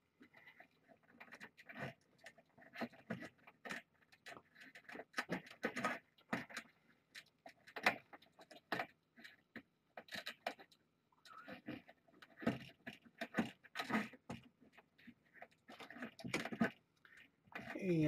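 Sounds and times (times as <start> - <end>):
clicks and rattles of handling: 0.0 - 18.0.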